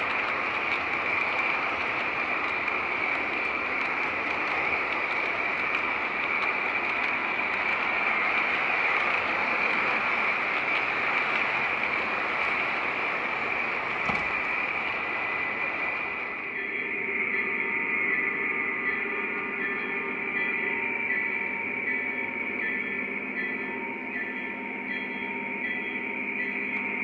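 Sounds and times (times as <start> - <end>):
model train motor whirring: 0.0 - 16.5
constant high hum: 0.0 - 27.0.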